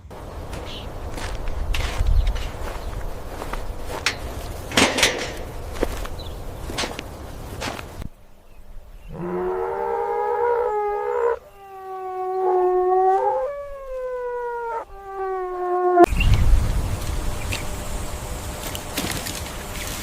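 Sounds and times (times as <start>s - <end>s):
dog howling: 9.1s - 16.1s.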